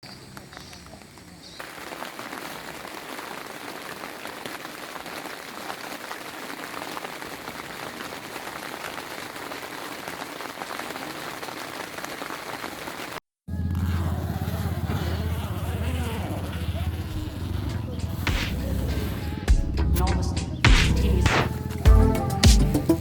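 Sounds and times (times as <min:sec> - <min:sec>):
rain falling: 0:01.6 - 0:13.2
engine humming: 0:13.5 - 0:23.0.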